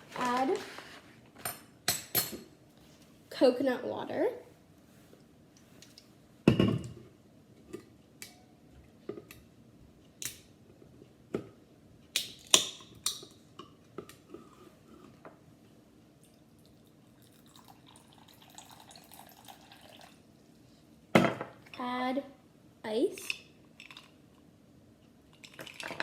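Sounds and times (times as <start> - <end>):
light clicks and drips: 5.2 - 6.1
faint trickle of liquid: 16.2 - 20.8.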